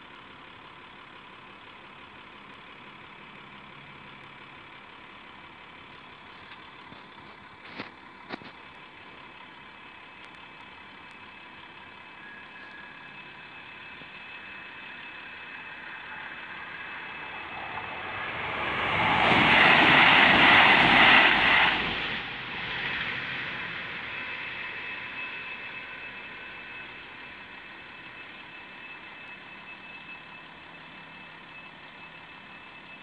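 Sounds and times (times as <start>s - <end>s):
level crossing alarm: 9.7s - 19.6s, 23.8s - 33.0s
train rushing past: 13.1s - 24.4s.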